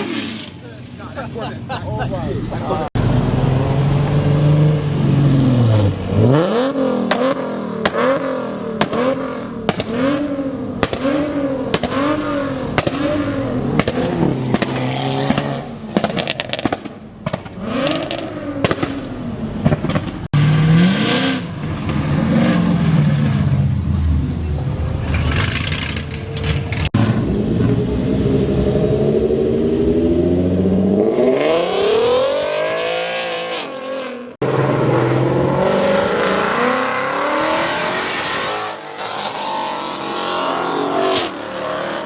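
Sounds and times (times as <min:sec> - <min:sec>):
car engine revving: 0:02.3 - 0:42.0
exhaust pops and crackles: 0:08.8 - 0:10.1, 0:10.8 - 0:20.4.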